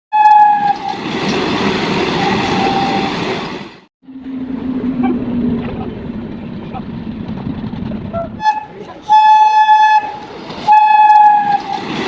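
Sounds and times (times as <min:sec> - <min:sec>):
train horn: 0:00.1 - 0:01.0, 0:02.2 - 0:03.3, 0:08.4 - 0:11.8
train rushing past and rattling: 0:00.2 - 0:12.0
train droning with faint clicks: 0:04.1 - 0:12.0.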